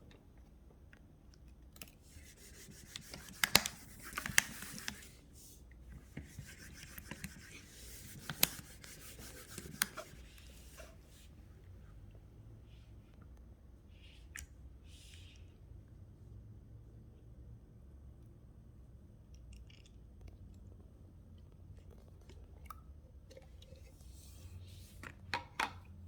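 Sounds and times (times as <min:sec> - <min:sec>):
fingers rubbing on phone: 0:02.1 - 0:05.2, 0:06.2 - 0:11.2.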